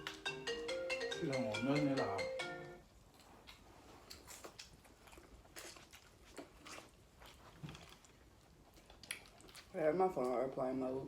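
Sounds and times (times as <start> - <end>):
chewing and mouth smacks: 3.1 - 10.4.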